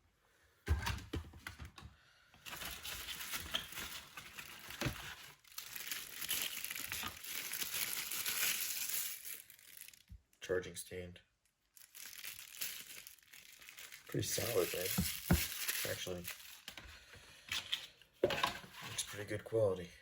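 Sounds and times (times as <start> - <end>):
plastic packaging crinkling: 2.4 - 10.2, 11.6 - 16.9.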